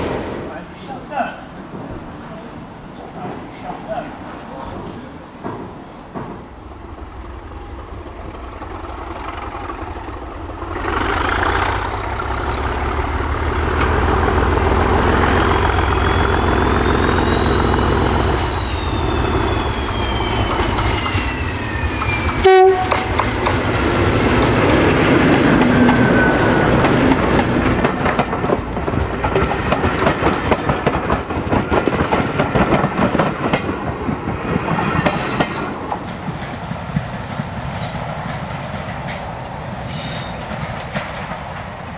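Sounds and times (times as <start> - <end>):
locomotive engine rumbling: 0.0 - 41.9
wheels clattering on rails: 1.6 - 18.8, 19.5 - 41.9
whistle rising and falling: 15.0 - 23.0.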